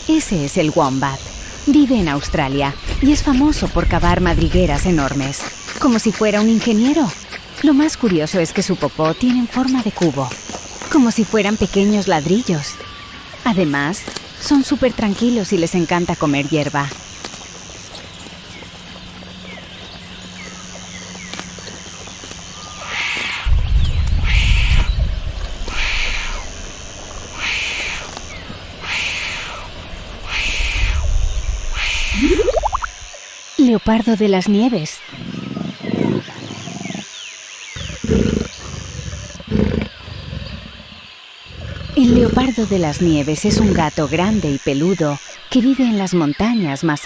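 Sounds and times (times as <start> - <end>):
insects: 0.0 - 47.0
small birds chirping: 0.1 - 47.0
faint bird chirps: 27.3 - 33.1
snow leopard growling: 35.1 - 44.6
wombat grunting: 35.2 - 37.1, 37.8 - 44.6.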